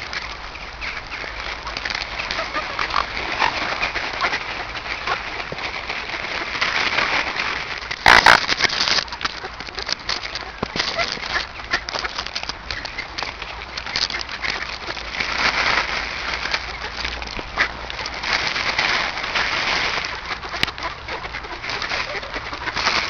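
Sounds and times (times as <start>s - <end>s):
flock of ducks calling: 0.0s - 23.0s.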